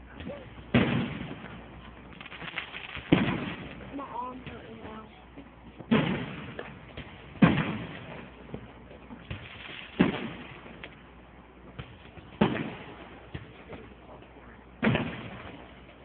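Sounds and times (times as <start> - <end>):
fireworks shells bursting: 0.6 - 4.5.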